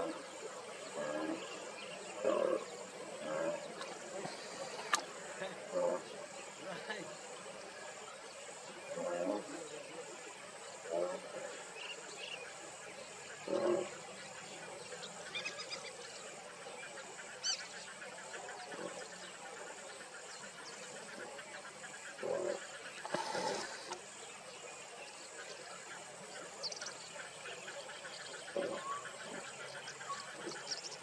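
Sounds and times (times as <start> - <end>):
steady high insect drone: 0.0 - 31.0
low animal calls: 22.2 - 24.0.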